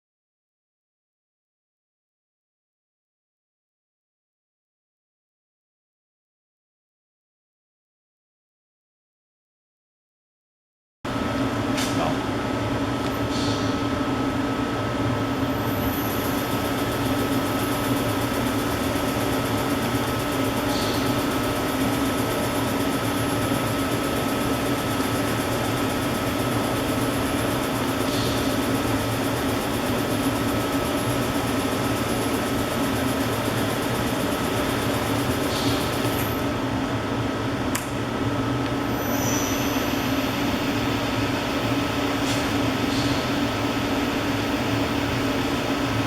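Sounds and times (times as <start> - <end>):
machine hum with high whine: 11.1 - 46.0.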